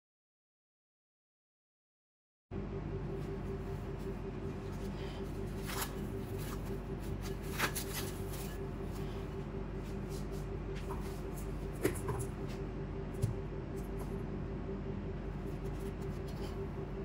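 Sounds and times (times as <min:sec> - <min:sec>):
cling wrap crinkling: 0:04.6 - 0:09.0.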